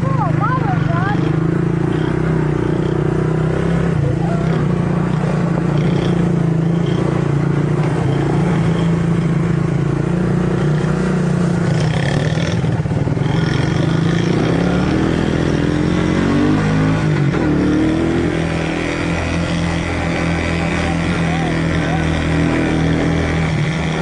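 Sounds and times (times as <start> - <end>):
small off-road engines running: 0.0 - 24.0.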